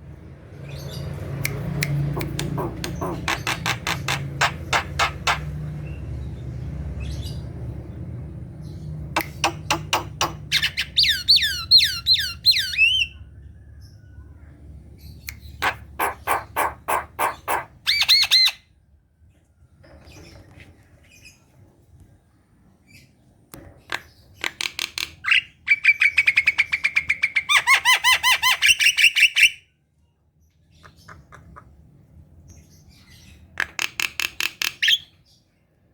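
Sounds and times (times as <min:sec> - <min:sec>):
bird chattering: 0:01.5 - 0:05.6, 0:09.2 - 0:13.2, 0:15.3 - 0:18.6.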